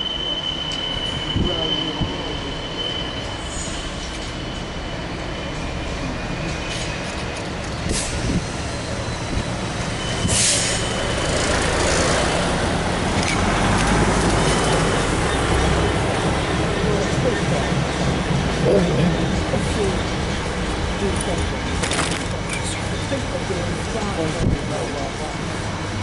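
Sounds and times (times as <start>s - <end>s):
diesel train rumbling past: 0.0s - 26.0s
train clunks: 10.1s - 25.2s.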